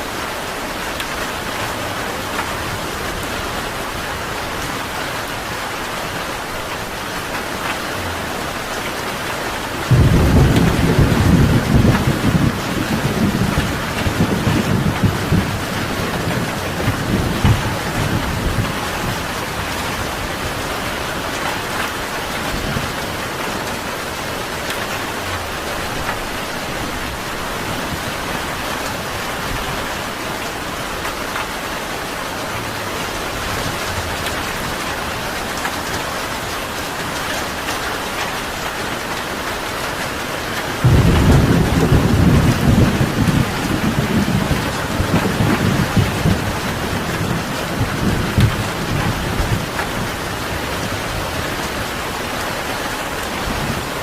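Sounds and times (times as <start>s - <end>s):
steady rain: 0.0s - 54.0s
rolling thunder rumble: 9.8s - 23.8s, 40.8s - 51.9s.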